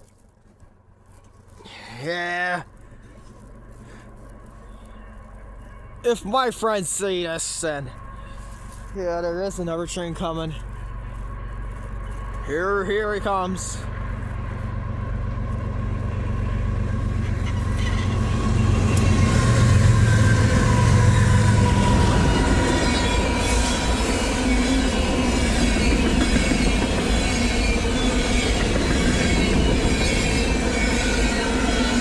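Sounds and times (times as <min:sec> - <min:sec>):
locomotive engine rumble: 0:00.0 - 0:32.0
train cars rolling on rails: 0:00.0 - 0:32.0
wheel squeal: 0:16.0 - 0:32.0.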